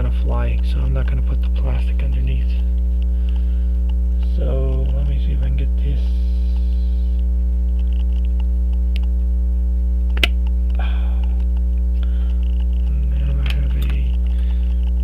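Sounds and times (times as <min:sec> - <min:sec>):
electrical mains hum: 0:00.0 - 0:15.0
sharp click: 0:10.1 - 0:11.6.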